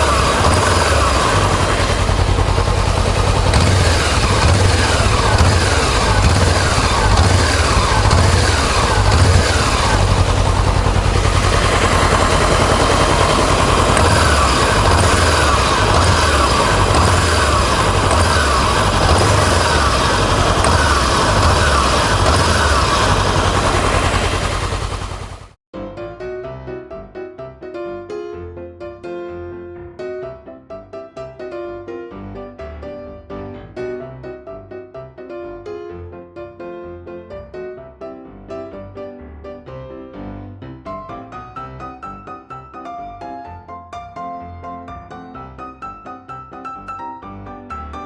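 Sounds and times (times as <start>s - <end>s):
motorcycle engine running: 0.0s - 25.6s
piano music: 25.8s - 48.0s.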